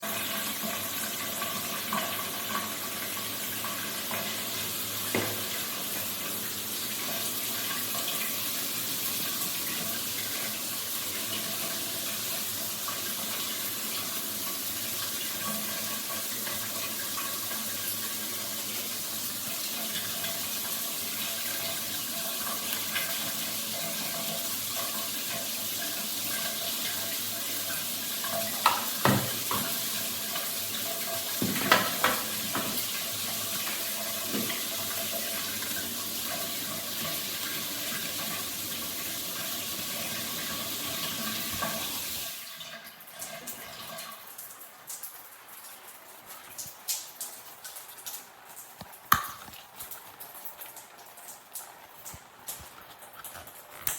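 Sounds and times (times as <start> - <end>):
shower water spraying: 0.0 - 42.5.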